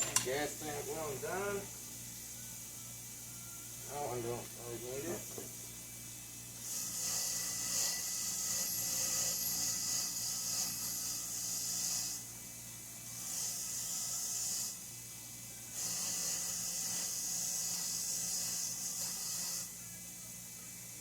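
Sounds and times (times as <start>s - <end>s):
harsh rasping hiss: 6.5s - 12.3s, 13.1s - 15.0s, 15.7s - 19.8s.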